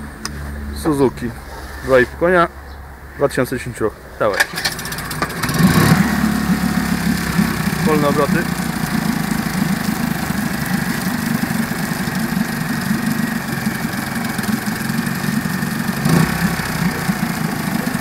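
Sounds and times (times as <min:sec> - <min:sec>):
outboard motor idling: 0:04.4 - 0:18.0.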